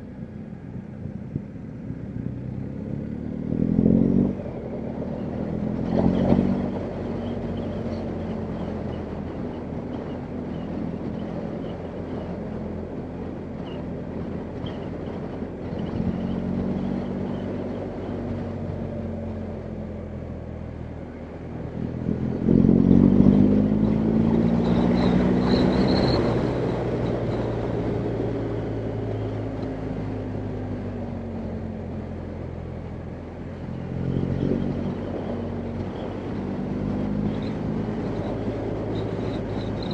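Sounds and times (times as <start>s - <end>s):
motorcycle engine revving: 2.1s - 12.2s, 21.6s - 39.9s.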